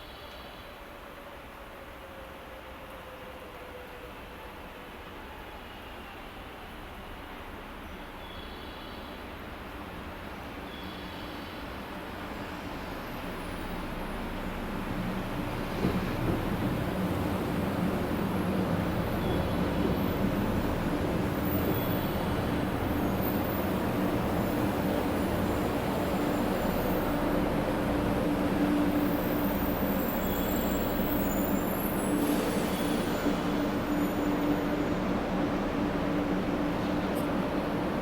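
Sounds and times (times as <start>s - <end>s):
train running rumble: 12.8s - 38.0s.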